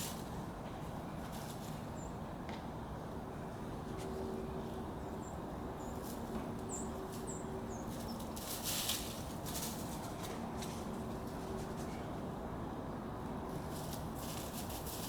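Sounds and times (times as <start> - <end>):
dry leaves rustling and crunching: 7.9 - 10.9, 13.5 - 15.0.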